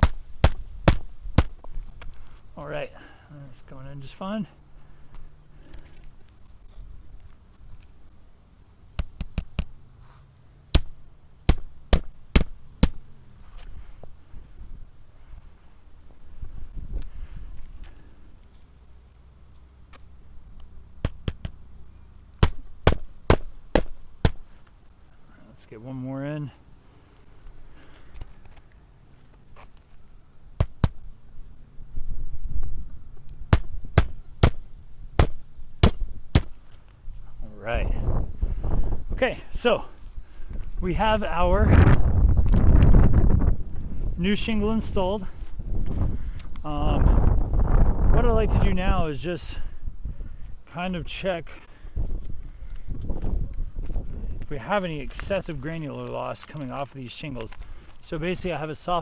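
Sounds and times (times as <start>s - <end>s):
hammer striking roofing nails: 22.4s - 24.4s.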